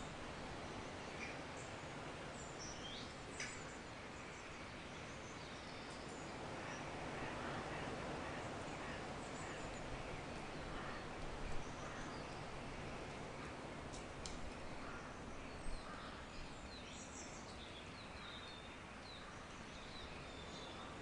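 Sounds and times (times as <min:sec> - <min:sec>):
small birds chirping: 0:00.0 - 0:07.0
steady background hiss: 0:00.0 - 0:21.0.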